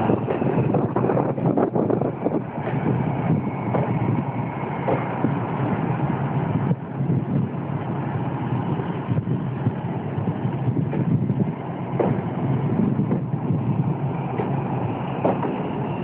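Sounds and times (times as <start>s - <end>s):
passenger train rumbling past: 0.0s - 16.0s
knocks of train on rails: 3.7s - 4.1s, 4.8s - 5.4s, 12.0s - 13.4s, 14.4s - 15.8s.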